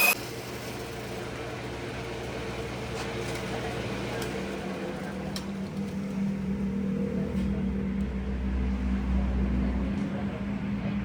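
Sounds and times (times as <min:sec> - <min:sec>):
motor humming: 0:00.0 - 0:02.4.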